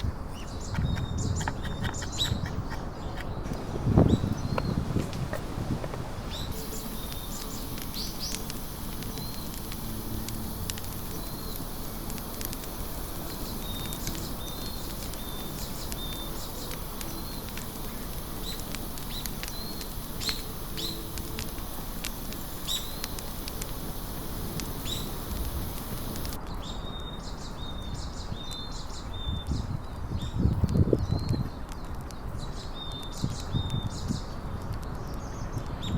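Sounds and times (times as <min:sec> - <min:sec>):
sharp clicks: 0:00.0 - 0:26.4
steady hiss: 0:00.0 - 0:26.4
small birds chirping: 0:00.0 - 0:35.9.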